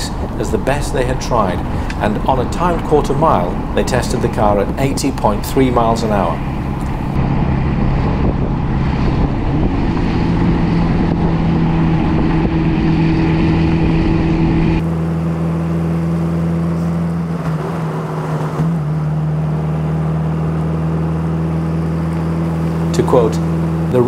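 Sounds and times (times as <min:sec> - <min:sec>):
wind noise: 0:00.0 - 0:14.9
car engine cruising: 0:00.0 - 0:24.0.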